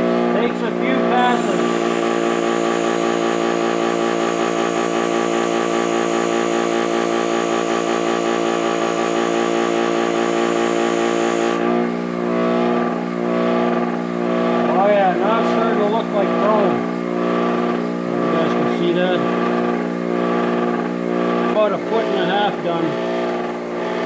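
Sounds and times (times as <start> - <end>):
electric buffer motor running: 0.0 - 24.0
buffing wheel polishing hiss: 1.1 - 11.7.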